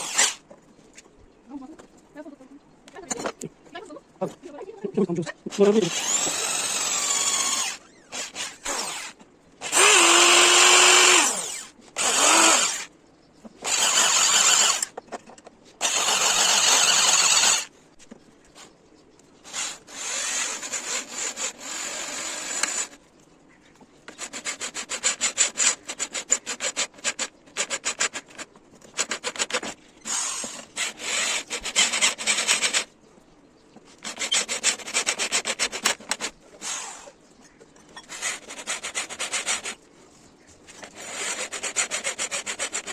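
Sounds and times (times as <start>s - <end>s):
power tool bursts: 0.0s - 0.4s, 5.5s - 12.9s, 13.6s - 14.9s, 15.8s - 17.7s
rapid rasping: 5.6s - 12.9s, 40.8s - 42.9s.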